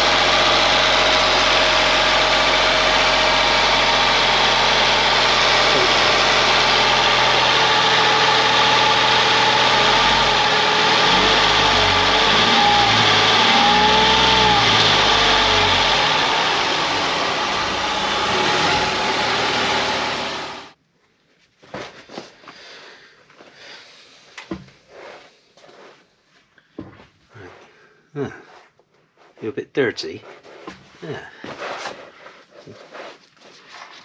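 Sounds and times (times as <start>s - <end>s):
car engine running: 0.0s - 20.8s.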